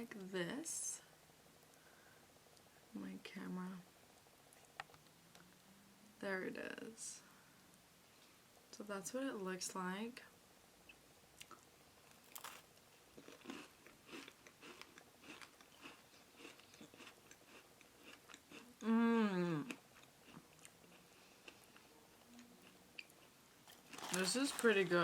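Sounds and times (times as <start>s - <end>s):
person chewing crunchy cookie: 11.4s - 18.9s, 19.6s - 24.6s.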